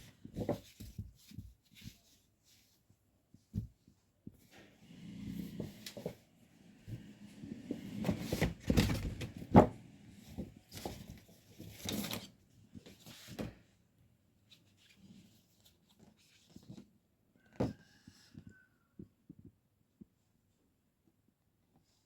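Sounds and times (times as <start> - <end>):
household items clattering: 6.9 - 12.2.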